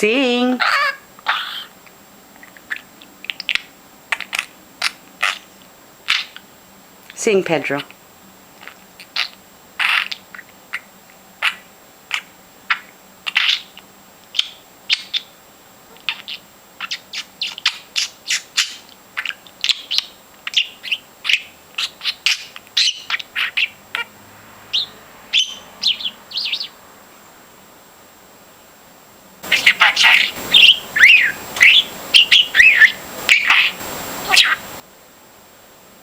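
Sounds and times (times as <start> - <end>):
bird chirping sharp calls: 0.5 - 1.8, 2.4 - 6.4, 8.6 - 15.4, 16.0 - 26.8, 29.4 - 34.8.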